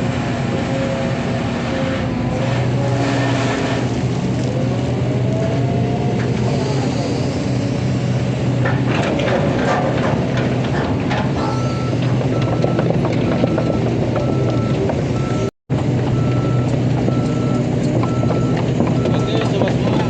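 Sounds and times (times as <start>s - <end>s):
excavator diesel engine running: 0.0s - 20.0s
metal clanks and knocks: 8.6s - 15.1s, 15.7s - 20.0s
warning alarm beeping: 16.2s - 19.5s.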